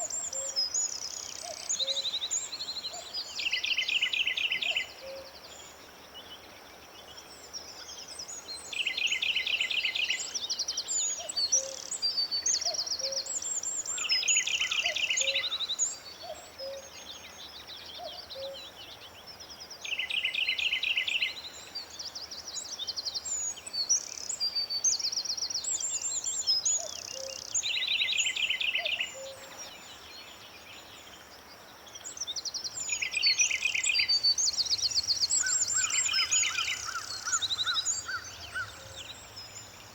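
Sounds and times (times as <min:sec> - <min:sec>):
birds chirping and whistling: 0:32.7 - 0:39.9.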